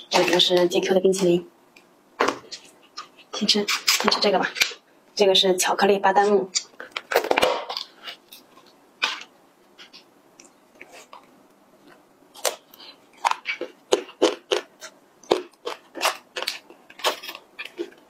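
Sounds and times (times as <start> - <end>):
crunchy chocolate chewing: 6.5 - 18.0.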